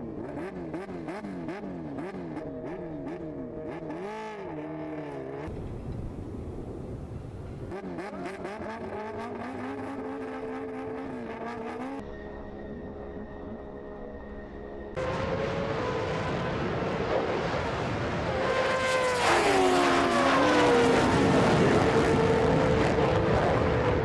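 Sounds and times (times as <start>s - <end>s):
racing engines accelerating: 7.7s - 12.1s, 14.9s - 24.0s.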